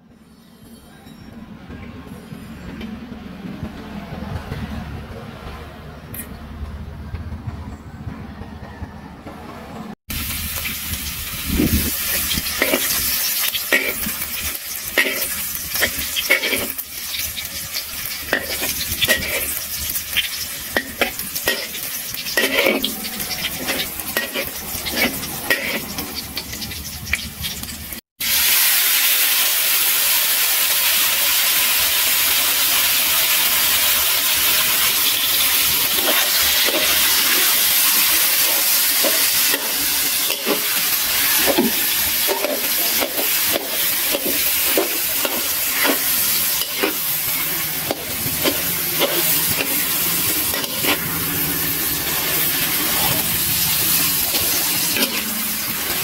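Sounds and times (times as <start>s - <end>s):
eggplants frying in oil: 10.1s - 56.0s
garlic sizzling in hot oil: 10.1s - 56.0s
metal ladle scraping a wok: 10.2s - 27.8s, 33.8s - 56.0s.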